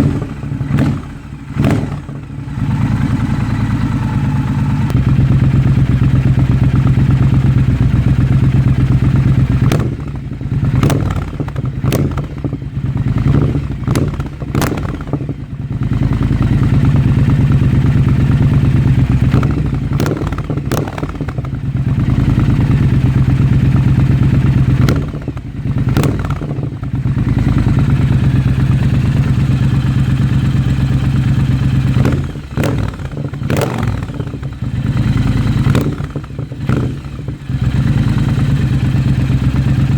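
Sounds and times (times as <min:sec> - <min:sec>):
motorcycle engine at steady throttle: 0:00.0 - 0:39.9
exhaust pops and crackles: 0:10.8 - 0:12.5, 0:13.9 - 0:15.3, 0:19.3 - 0:21.6.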